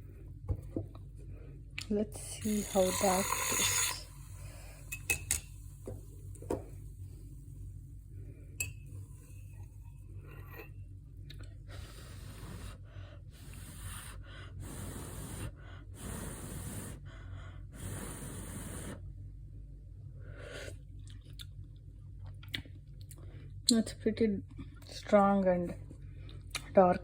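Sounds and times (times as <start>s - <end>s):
person breathing: 2.4s - 5.0s, 11.6s - 19.0s
person sipping coffee: 2.5s - 5.1s.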